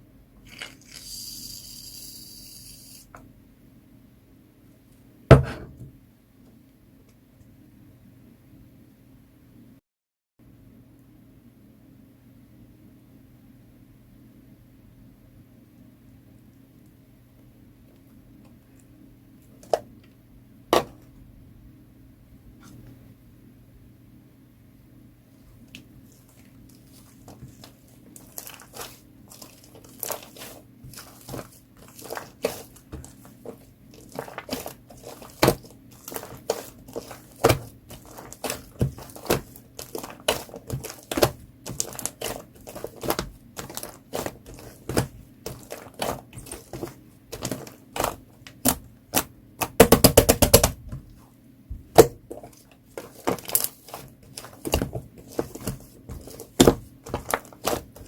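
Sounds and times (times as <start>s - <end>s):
slime squishing with bubbles popping: 26.8s - 50.8s, 51.8s - 58.0s.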